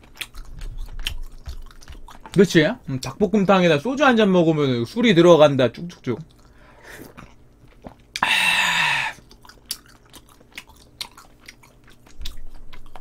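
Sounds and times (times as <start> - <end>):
man chewing stew: 0.0 - 3.4, 5.8 - 13.0
man sighing ahh: 8.2 - 9.2.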